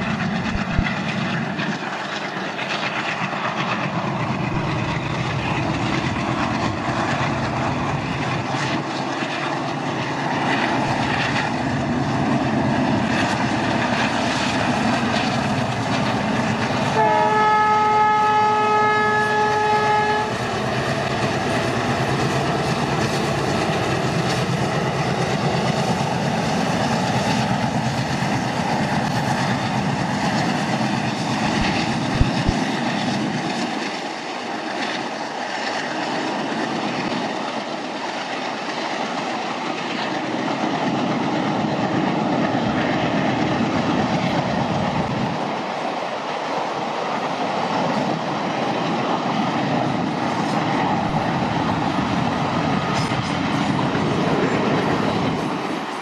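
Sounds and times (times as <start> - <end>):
train wheels on rails: 0.0 - 56.0
locomotive horn blast: 16.9 - 20.4.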